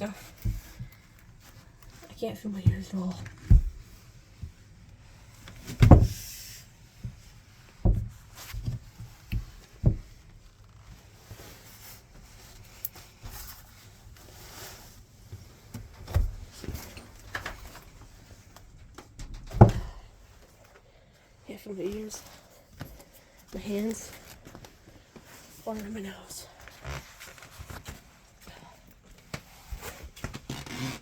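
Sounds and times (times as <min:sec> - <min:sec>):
faint rustling and handling noise: 0:00.0 - 0:31.0
heavy knocks and thumps: 0:02.6 - 0:03.9, 0:07.8 - 0:08.8, 0:19.2 - 0:20.1.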